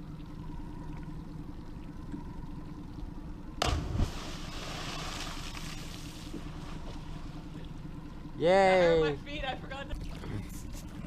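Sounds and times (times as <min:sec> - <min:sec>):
motorboat engine humming: 0:00.0 - 0:11.0
loud thump: 0:03.6 - 0:04.4.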